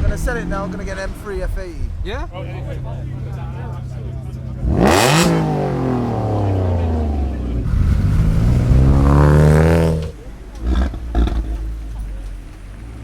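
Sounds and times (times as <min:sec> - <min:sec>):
car engine revving hard: 0:04.5 - 0:13.0.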